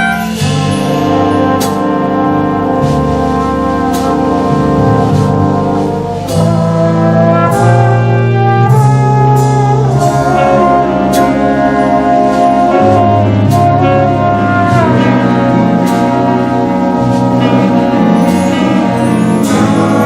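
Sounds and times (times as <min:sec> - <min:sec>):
cymbal strokes: 0:00.0 - 0:03.4
bass line: 0:00.0 - 0:20.0
horns holding chords: 0:00.0 - 0:20.0.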